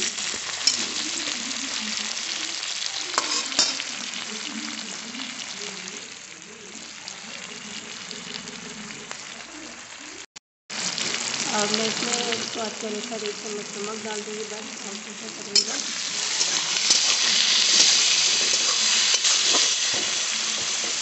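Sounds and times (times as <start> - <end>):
vegetables sizzling in hot oil: 0.0 - 21.0
metal spatula scraping a pan: 15.5 - 21.0.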